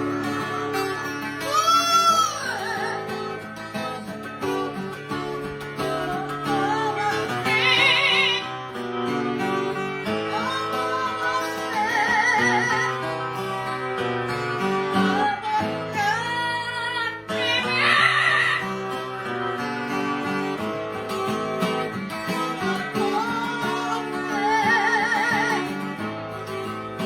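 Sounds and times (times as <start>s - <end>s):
strummed acoustic guitar: 0.0s - 27.0s
person singing long wavering notes: 5.8s - 8.7s.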